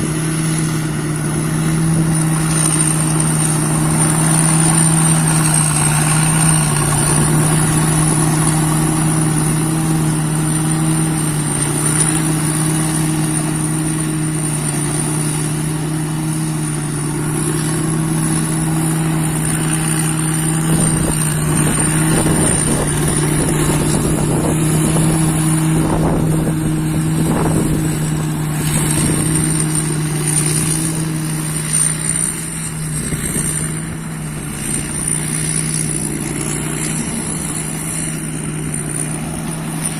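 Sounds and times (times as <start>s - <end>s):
combine harvester engine drone: 0.0s - 39.9s
high wavering whine: 0.0s - 39.9s.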